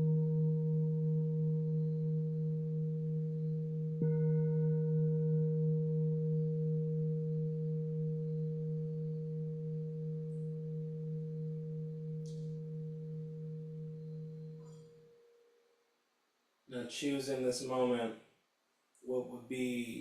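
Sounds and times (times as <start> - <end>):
singing bowl ringing: 0.0 - 15.7.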